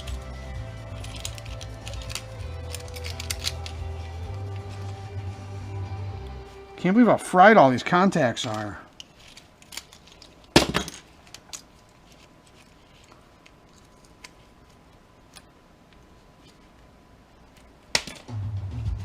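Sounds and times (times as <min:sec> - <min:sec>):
metal parts and tools clicking: 0:00.0 - 0:04.0, 0:08.4 - 0:14.4.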